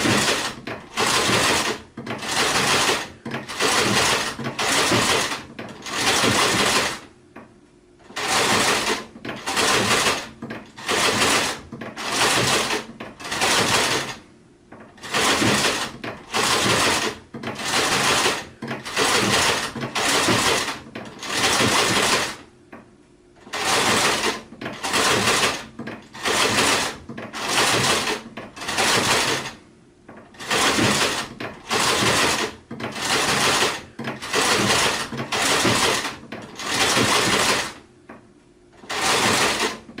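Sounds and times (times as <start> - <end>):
sewing machine stitching: 0.0 - 7.1, 8.0 - 22.5, 23.4 - 37.8, 38.8 - 40.0.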